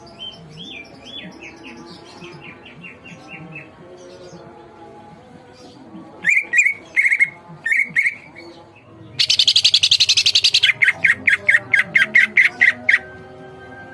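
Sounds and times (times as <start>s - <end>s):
bird singing chirps and trills: 0.0s - 13.9s.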